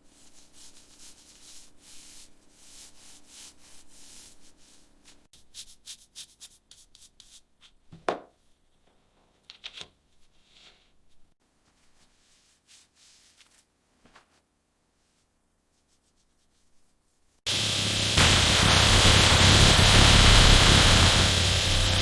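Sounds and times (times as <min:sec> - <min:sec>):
hand sanding strokes: 0:00.0 - 0:07.4.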